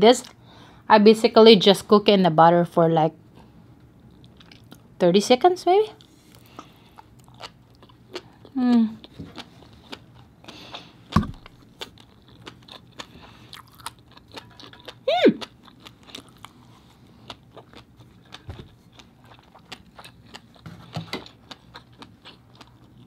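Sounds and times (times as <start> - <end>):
close chewing with wet clicks: 4.1 - 4.9, 6.0 - 20.6, 21.3 - 23.0.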